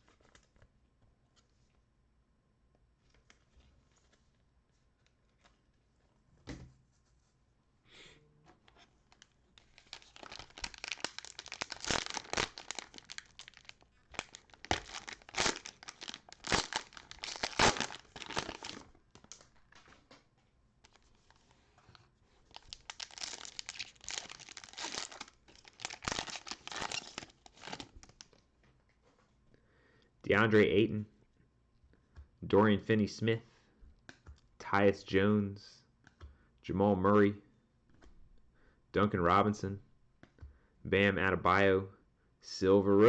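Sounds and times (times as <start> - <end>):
plastic wrappers tearing and crinkling: 9.1 - 19.5, 22.4 - 28.4.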